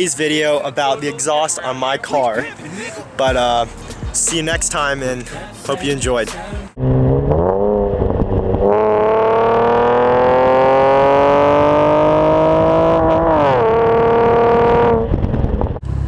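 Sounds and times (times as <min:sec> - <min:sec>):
car exhaust under hard acceleration: 0:06.7 - 0:16.0.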